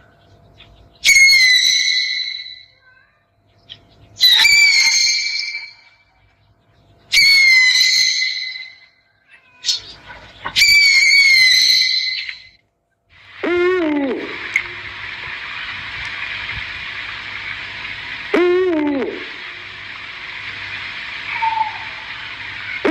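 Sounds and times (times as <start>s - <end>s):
owl calling: 1.0s - 3.0s, 3.7s - 6.0s, 7.1s - 12.6s, 21.1s - 22.9s.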